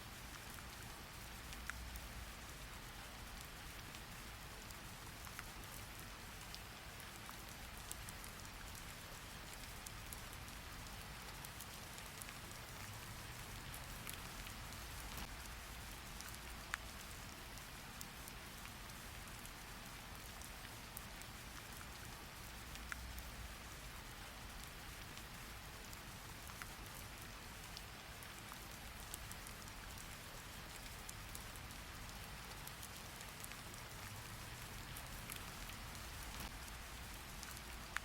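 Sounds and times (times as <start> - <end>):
steady rain falling: 0.0 - 38.0
raindrop clicks: 9.4 - 17.4, 32.5 - 38.0.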